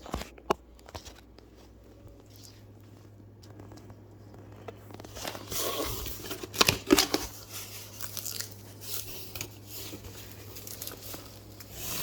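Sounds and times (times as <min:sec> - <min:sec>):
packaging rustling and tearing: 0:03.5 - 0:12.0.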